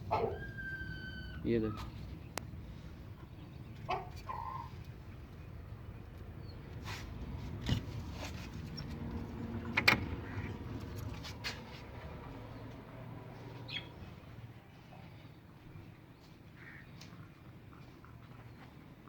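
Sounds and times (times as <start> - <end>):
bird chirp: 13.4 - 17.1.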